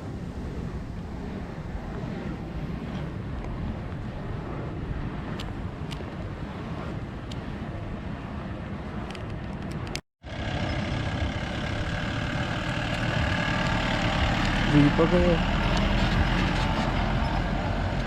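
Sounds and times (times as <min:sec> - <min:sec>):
wind rumbling on microphone: 0:00.0 - 0:18.0
jeep engine running: 0:10.3 - 0:18.0.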